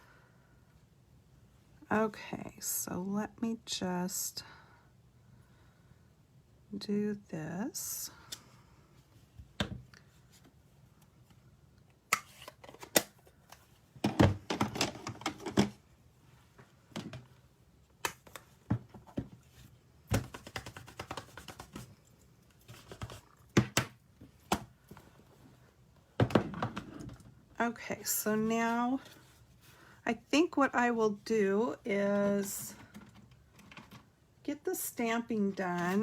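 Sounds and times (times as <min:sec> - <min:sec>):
stamping supplies tapping and knocking: 0:20.1 - 0:21.8.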